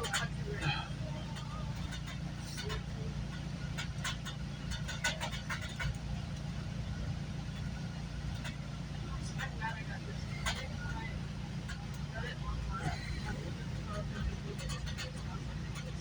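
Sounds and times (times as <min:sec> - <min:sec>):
train rumbling from inside coach: 0:00.0 - 0:16.0
light clicks and knocks: 0:01.3 - 0:06.6.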